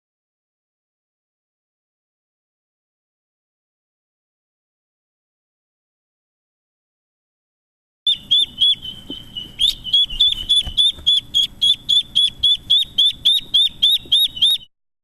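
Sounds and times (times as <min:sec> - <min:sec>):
bird chirping: 0:08.1 - 0:14.7
bird whistled note: 0:08.1 - 0:14.7.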